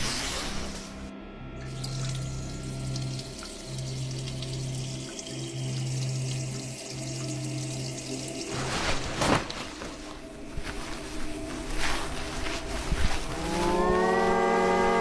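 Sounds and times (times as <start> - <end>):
man urinating: 1.7 - 8.9.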